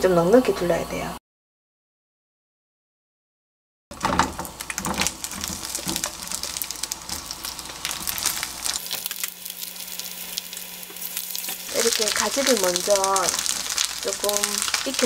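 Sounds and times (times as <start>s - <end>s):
eggplant sizzling in oil: 3.9s - 15.0s.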